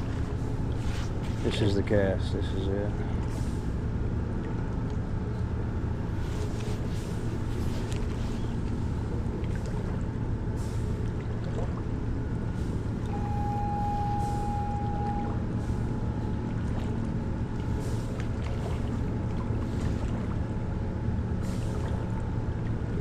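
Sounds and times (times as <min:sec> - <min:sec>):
low engine drone: 0:00.0 - 0:23.0
high single tone: 0:13.1 - 0:15.8.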